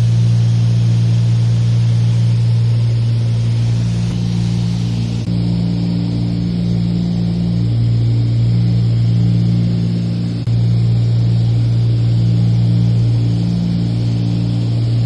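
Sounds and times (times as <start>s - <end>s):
propeller airplane engine droning: 0.0s - 15.0s.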